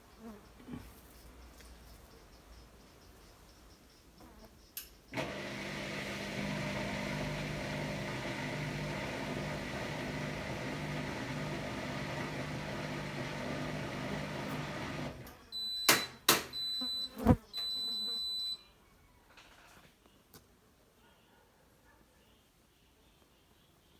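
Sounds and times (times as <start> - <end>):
washer-dryer humming: 5.1 - 16.1.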